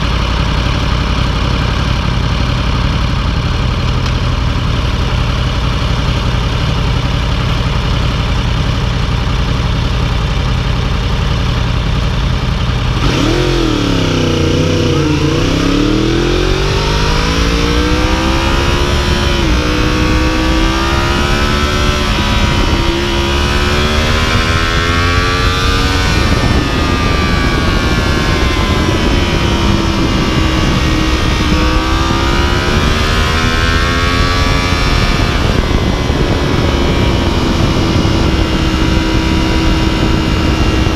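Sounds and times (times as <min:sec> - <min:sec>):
motorcycle engine idling and accelerating: 0:00.0 - 0:40.9.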